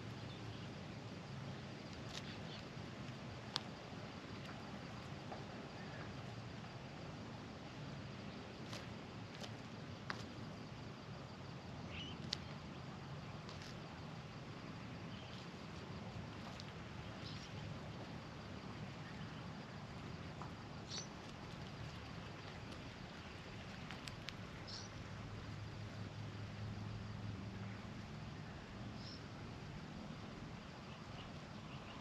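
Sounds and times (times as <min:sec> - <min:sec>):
bird foraging in dry mulch: 0:00.0 - 0:32.0
faint bird chirps: 0:11.8 - 0:12.6, 0:17.0 - 0:17.7, 0:20.8 - 0:21.2, 0:24.6 - 0:25.0, 0:29.0 - 0:29.3, 0:30.9 - 0:32.0.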